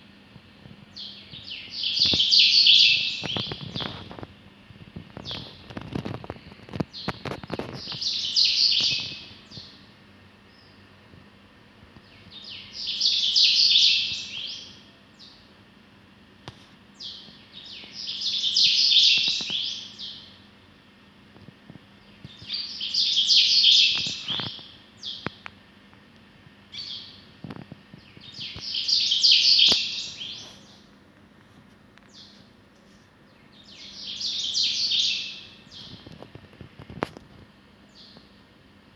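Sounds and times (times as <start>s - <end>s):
bird chirping: 0.9s - 4.2s, 5.1s - 9.9s, 10.5s - 10.8s, 12.0s - 15.5s, 17.0s - 20.4s, 22.0s - 25.4s, 26.7s - 27.3s, 27.9s - 30.9s, 32.0s - 36.3s, 37.9s - 38.4s.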